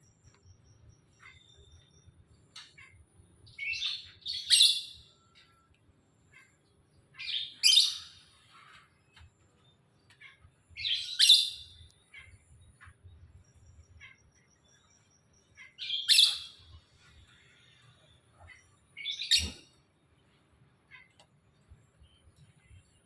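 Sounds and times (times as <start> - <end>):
high-pitched bird chirps: 1.0 - 5.4, 7.2 - 8.2, 10.2 - 12.9, 15.5 - 16.7, 18.4 - 19.7.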